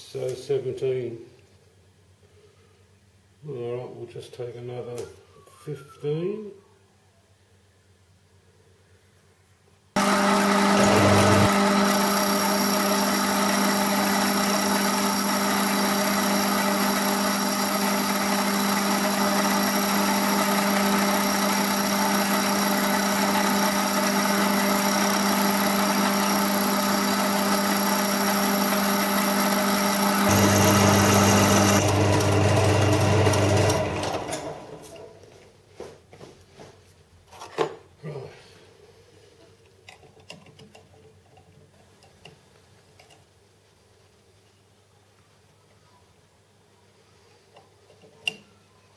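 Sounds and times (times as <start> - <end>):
metal lathe motor whining: 10.0 - 35.0.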